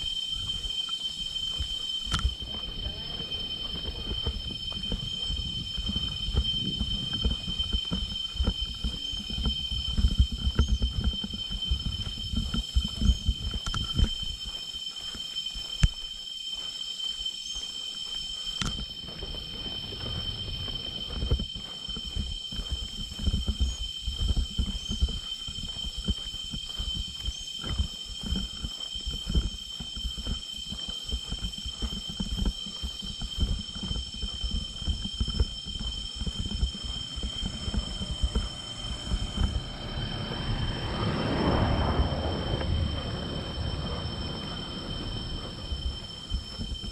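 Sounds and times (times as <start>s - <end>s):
insect chorus droning: 0.0s - 46.9s
low rumble: 1.5s - 14.4s, 18.9s - 26.3s, 34.8s - 46.9s.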